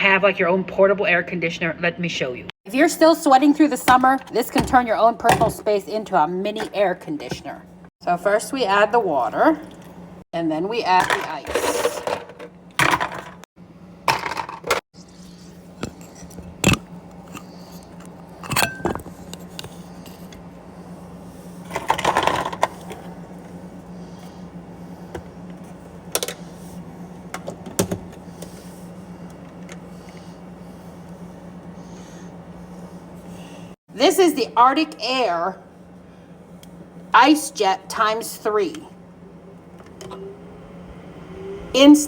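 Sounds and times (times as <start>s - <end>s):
cooler low hum: 0.0s - 42.0s.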